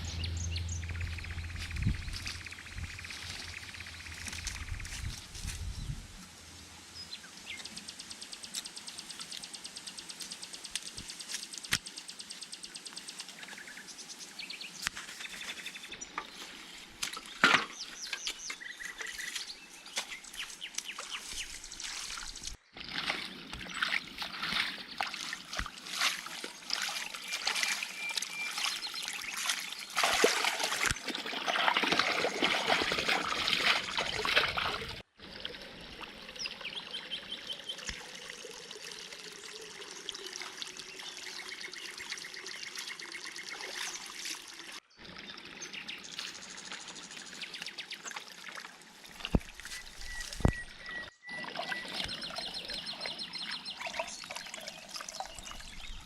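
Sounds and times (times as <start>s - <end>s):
birds chirping: 0.0s - 6.1s, 7.0s - 22.6s, 23.2s - 35.0s, 49.2s - 56.0s
water trickling and splashing: 0.0s - 56.0s.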